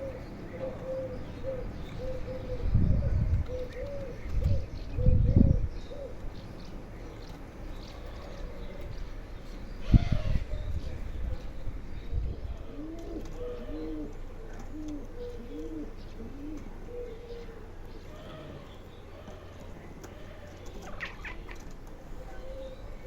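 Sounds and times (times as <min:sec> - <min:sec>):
pigeon cooing: 0:00.0 - 0:06.4, 0:12.3 - 0:23.0.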